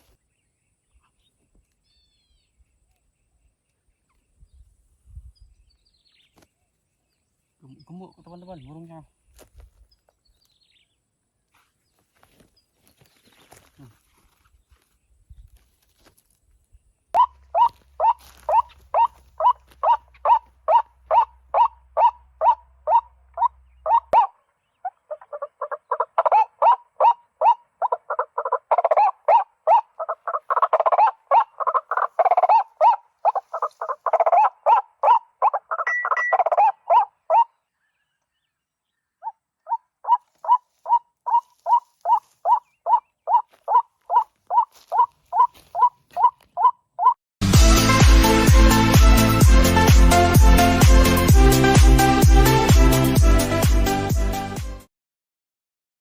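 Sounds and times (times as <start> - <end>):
waterhen croaking calls: 17.2 - 37.6, 39.6 - 47.2.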